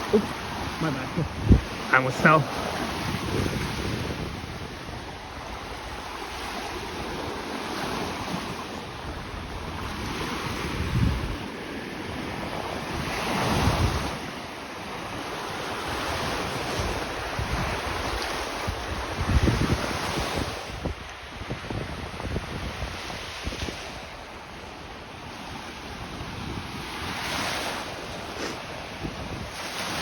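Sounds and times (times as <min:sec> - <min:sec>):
wind buffeting microphone: 0:00.0 - 0:01.8, 0:03.0 - 0:06.1, 0:09.0 - 0:11.5, 0:16.6 - 0:24.1, 0:28.8 - 0:29.6
waves washing onto sand: 0:00.0 - 0:30.0.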